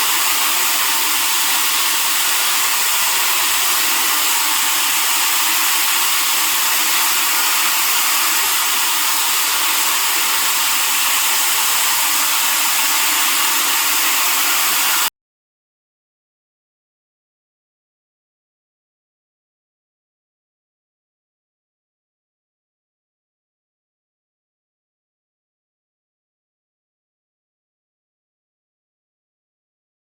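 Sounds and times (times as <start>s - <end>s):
floor sander whirring: 0.0s - 15.1s.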